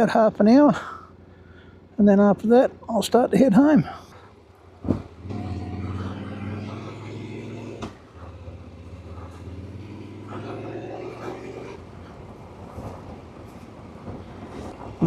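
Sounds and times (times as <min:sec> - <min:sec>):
motorcycle engine running: 0:04.4 - 0:12.0.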